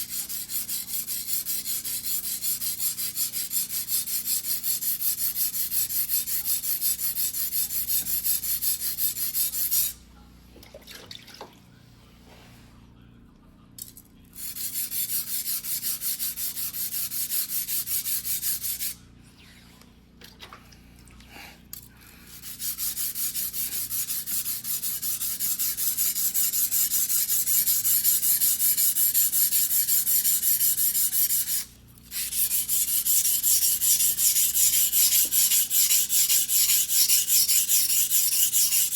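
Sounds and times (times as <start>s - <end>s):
knife scraping on whetstone: 22.4s - 38.9s.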